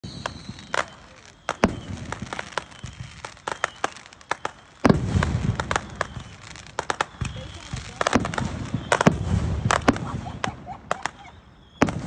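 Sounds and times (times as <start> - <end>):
fireworks popping and cracking: 0.0 - 12.0
firework boom and rumble: 4.8 - 10.7.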